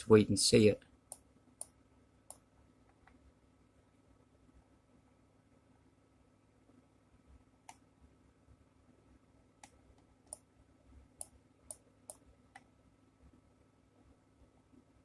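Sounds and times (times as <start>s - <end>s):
computer mouse clicks: 9.6s - 10.5s.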